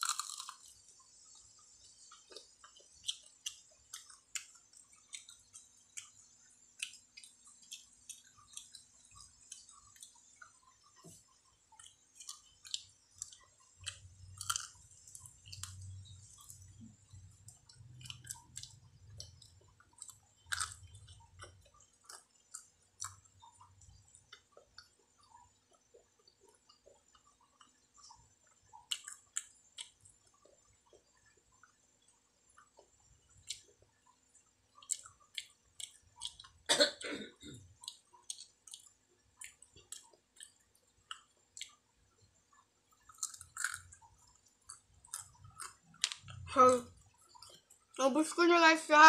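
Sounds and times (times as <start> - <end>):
boy chewing food: 0.0 - 49.0
wet mouth clicks and smacks: 37.8 - 41.8, 44.7 - 46.4.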